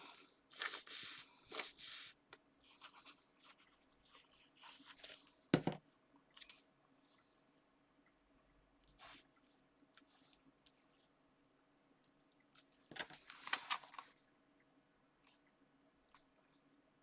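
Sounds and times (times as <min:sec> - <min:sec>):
knock on tabletop: 0:05.6 - 0:05.8
paper rustling: 0:13.0 - 0:14.2.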